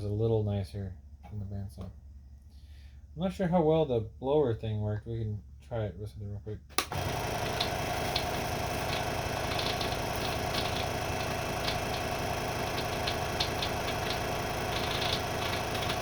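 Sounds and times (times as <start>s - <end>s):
scroll saw running: 6.8s - 16.0s.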